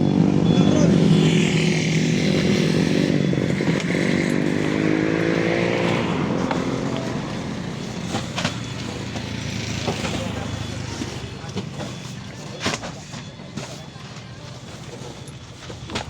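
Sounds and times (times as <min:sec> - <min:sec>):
vehicle engine accelerating: 0:00.0 - 0:11.6.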